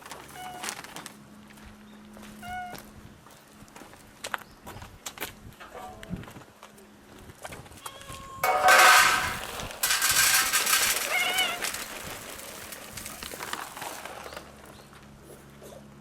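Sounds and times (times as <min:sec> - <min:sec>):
dry cat food rattling: 0:08.4 - 0:14.0.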